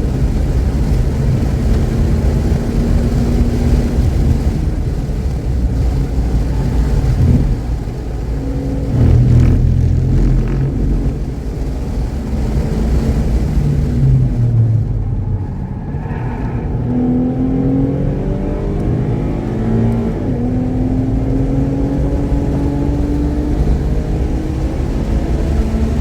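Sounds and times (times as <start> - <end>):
car engine running hard: 0.0 - 26.0.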